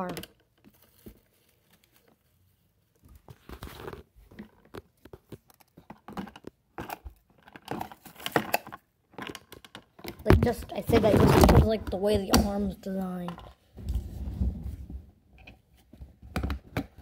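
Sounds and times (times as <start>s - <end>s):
plastic toy clicks and rattles: 5.5s - 10.5s.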